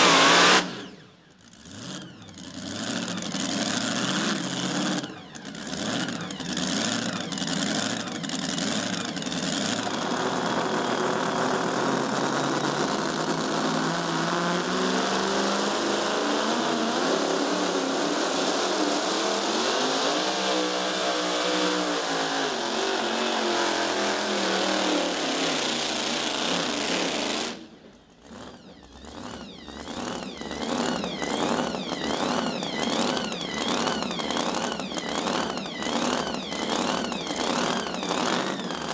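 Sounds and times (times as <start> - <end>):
truck engine revving loud: 0.0 - 1.0, 1.6 - 27.6, 28.2 - 38.9
quieter engine pulsing: 27.6 - 38.9.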